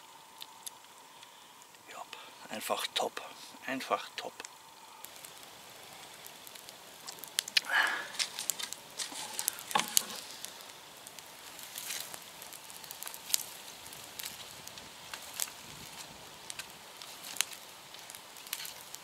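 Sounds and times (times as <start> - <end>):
campfire crackling: 0.0 - 19.0
sharp fire pops: 4.4 - 19.0.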